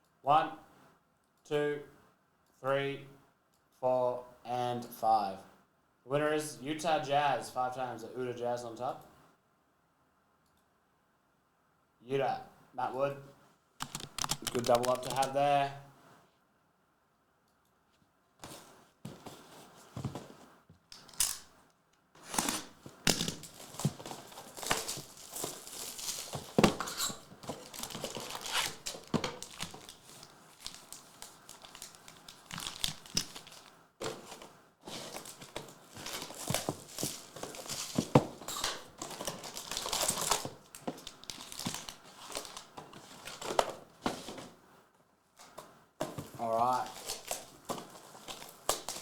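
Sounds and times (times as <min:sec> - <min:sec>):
plastic wrappers crinkling and tearing: 0:13.8 - 0:15.5, 0:22.2 - 0:43.8, 0:46.4 - 0:49.0.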